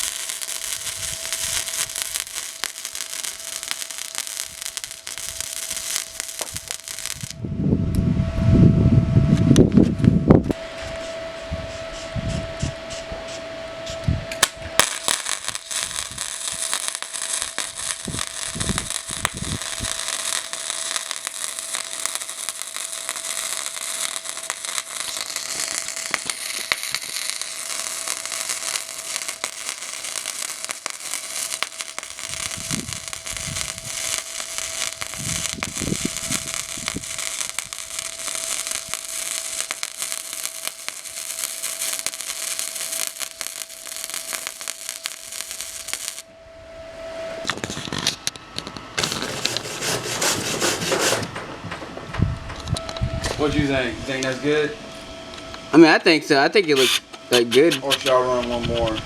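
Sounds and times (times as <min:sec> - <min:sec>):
welding arc crackling: 0:00.0 - 0:07.4, 0:14.4 - 0:46.3, 0:47.4 - 0:51.4
fan hum: 0:00.0 - 0:59.0.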